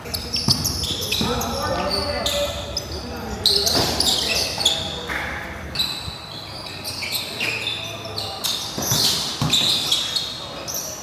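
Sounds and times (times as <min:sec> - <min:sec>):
sneakers squeaking on court: 0:00.0 - 0:11.0
basketball bouncing: 0:00.4 - 0:01.4.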